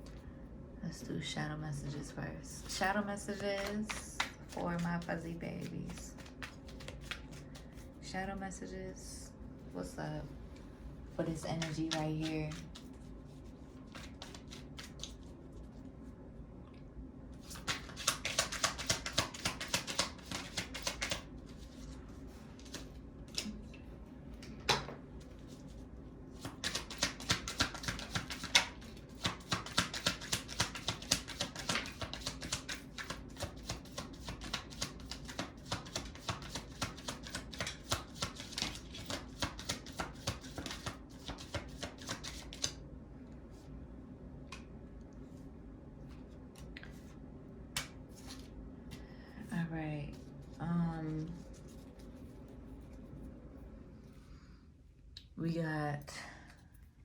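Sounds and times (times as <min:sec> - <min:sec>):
playing cards being shuffled: 0:02.6 - 0:07.9, 0:11.3 - 0:15.3, 0:17.4 - 0:23.8, 0:26.4 - 0:42.8, 0:47.8 - 0:48.5.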